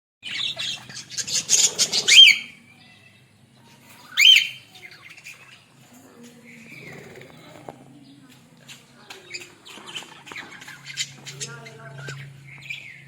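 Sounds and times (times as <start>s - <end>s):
parrots squawking: 0.2s - 3.2s, 3.9s - 7.6s, 9.3s - 13.0s.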